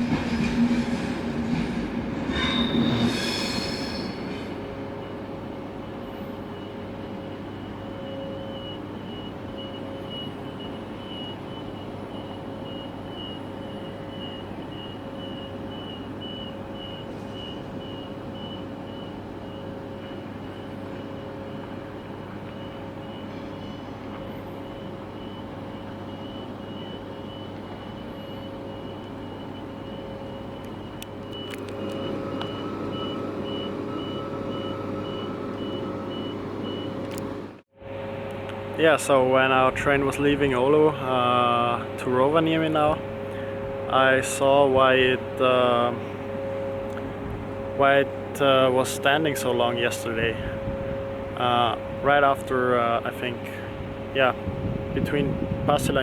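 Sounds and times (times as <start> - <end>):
train high squeal: 0.0 - 5.4, 6.1 - 37.0
electrical hum: 0.0 - 56.0
high-pitched warning beeps: 6.1 - 37.3.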